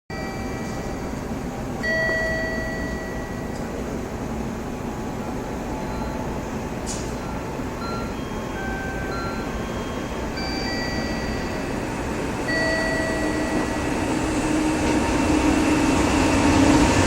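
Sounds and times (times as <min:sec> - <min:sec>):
train wheels rumbling on rails: 0:06.7 - 0:17.0.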